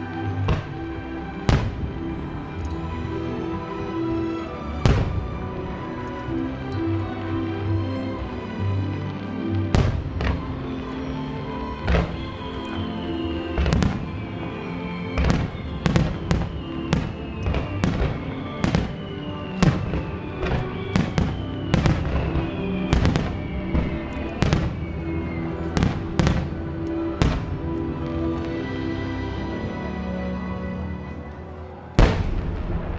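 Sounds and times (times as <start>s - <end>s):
music: 0.0s - 32.9s
fireworks bursting: 0.4s - 3.1s, 3.8s - 6.3s, 9.5s - 28.7s, 32.0s - 32.9s.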